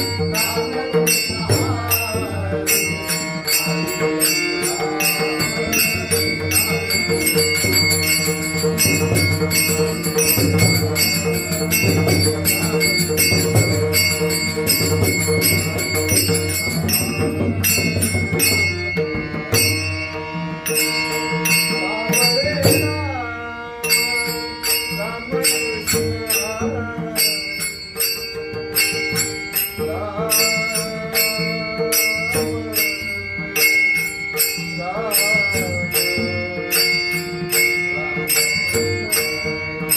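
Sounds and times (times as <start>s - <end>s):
small hand cymbals striking: 0.0s - 23.0s, 23.7s - 39.9s
hand drum: 0.0s - 23.2s
held instrument tones: 0.0s - 39.9s
man singing devotional song: 0.0s - 39.9s.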